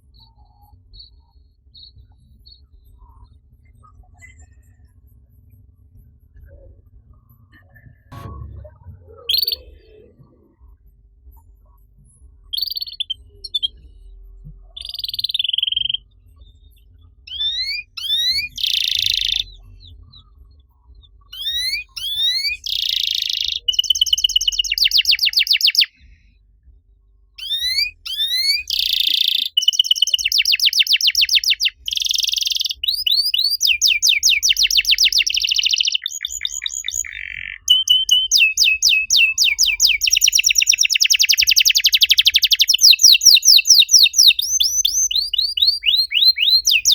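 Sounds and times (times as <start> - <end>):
canary singing: 9.2 - 10.1, 12.5 - 13.8, 14.7 - 16.2, 17.3 - 19.7, 21.3 - 25.9, 27.4 - 46.9.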